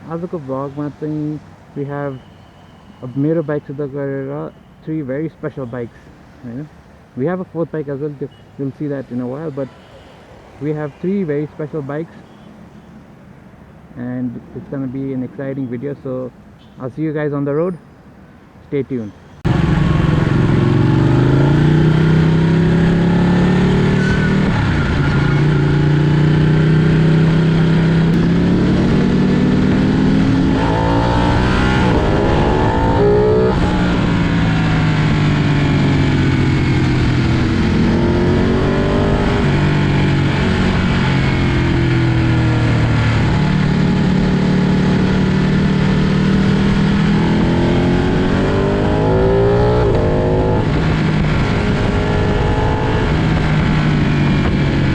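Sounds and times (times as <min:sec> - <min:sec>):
motorcycle engine revving: 0:19.4 - 0:54.9.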